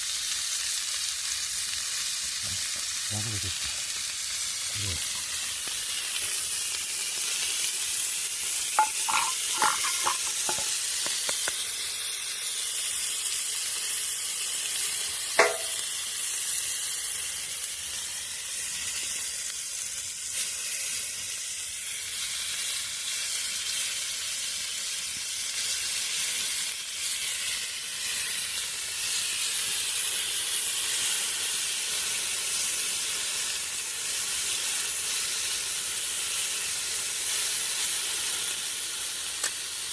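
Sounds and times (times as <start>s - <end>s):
food sizzling on hot metal: 0.0s - 39.9s
light metal clinks: 8.8s - 10.7s.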